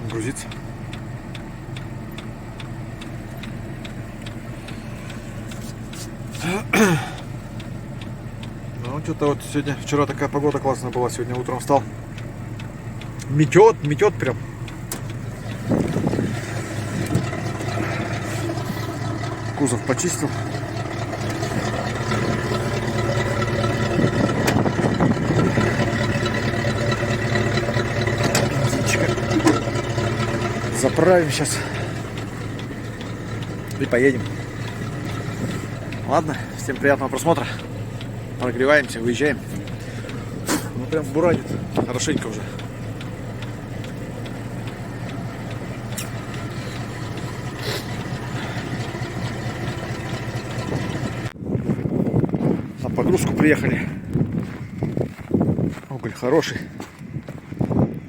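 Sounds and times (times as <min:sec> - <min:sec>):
sharp clicks: 0:00.0 - 0:06.4, 0:10.1 - 0:51.4
truck engine idling: 0:00.0 - 0:58.0.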